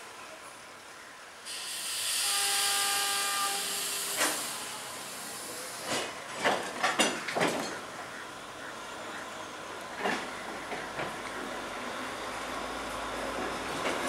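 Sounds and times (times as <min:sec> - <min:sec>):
train air release hiss: 0:01.4 - 0:06.2
train horn: 0:01.5 - 0:05.2
train clanks and knocks: 0:03.5 - 0:14.0.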